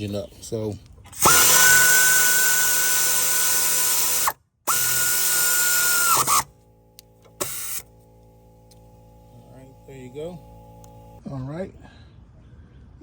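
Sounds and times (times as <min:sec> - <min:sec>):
power tool motor whining: 0:01.2 - 0:11.2.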